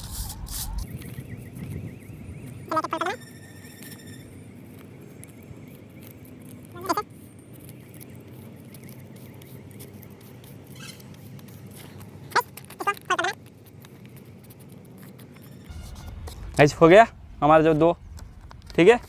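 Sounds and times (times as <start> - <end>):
paper rustling while folded: 0.0 - 1.6, 4.6 - 16.8
high squeaky calls: 0.3 - 4.8, 6.7 - 7.1, 10.6 - 11.2, 12.3 - 13.4.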